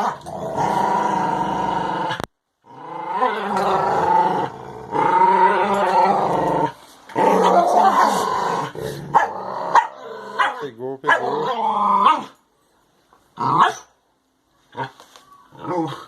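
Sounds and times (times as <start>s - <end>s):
dogs growling: 0.0s - 12.4s.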